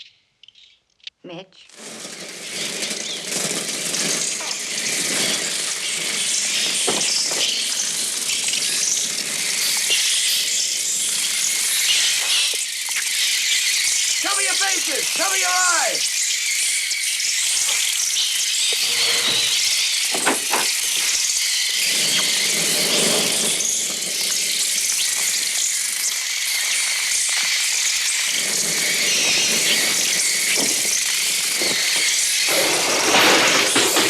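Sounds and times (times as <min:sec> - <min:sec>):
knocks: 0:19.2 - 0:20.8
fluttering rushing noise: 0:28.0 - 0:33.7.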